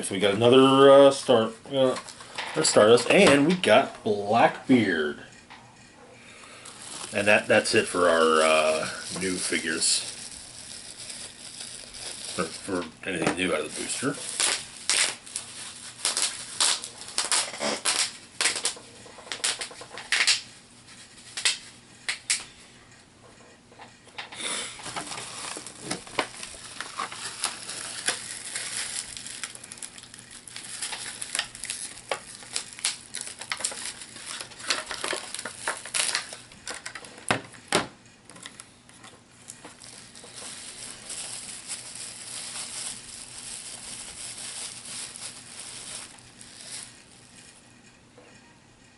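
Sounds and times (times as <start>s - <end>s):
packaging crinkling: 6.4s - 20.6s, 24.8s - 37.2s, 38.4s - 47.6s.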